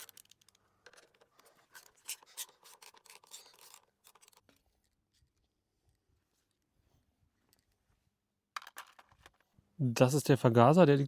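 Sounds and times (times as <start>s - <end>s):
scraping and clicking of hand work: 0.0s - 6.7s.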